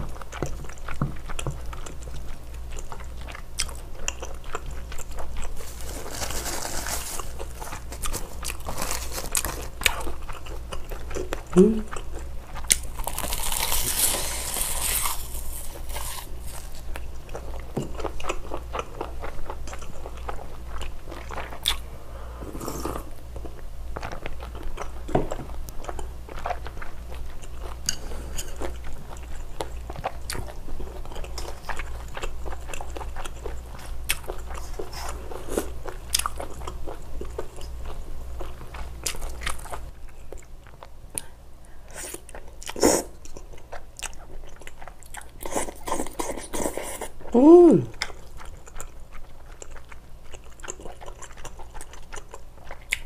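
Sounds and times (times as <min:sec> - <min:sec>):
faint low hum: 0:00.0 - 0:53.0
wet chewing: 0:47.9 - 0:53.0.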